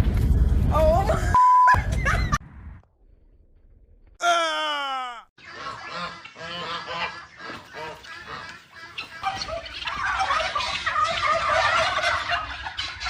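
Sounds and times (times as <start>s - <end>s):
fowl honking calls: 5.4s - 13.0s.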